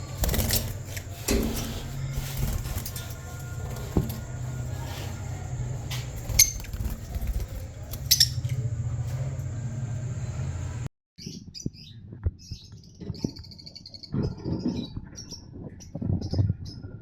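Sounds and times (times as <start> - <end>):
steady low hum: 0.0 - 10.9
lovebirds chirping: 0.0 - 16.6.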